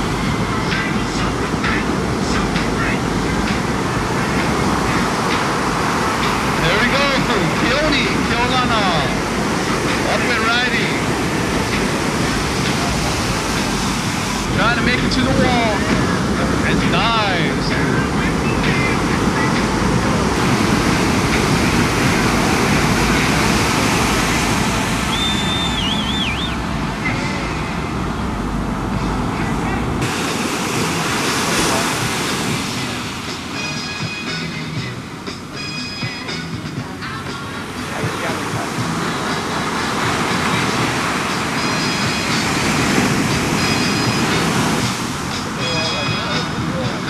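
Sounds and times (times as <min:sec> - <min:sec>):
heavy surf breaking: 0:00.0 - 0:47.0
short high whistle: 0:25.1 - 0:26.6.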